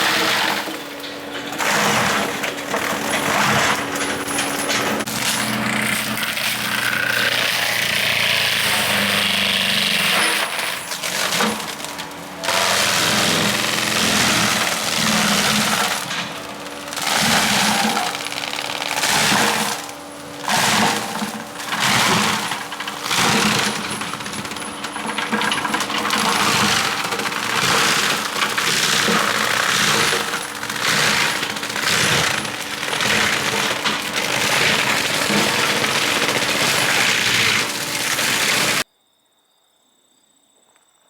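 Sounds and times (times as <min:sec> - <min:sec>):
engine hum: 0:00.0 - 0:38.8
brush crashing and snapping: 0:10.2 - 0:38.8.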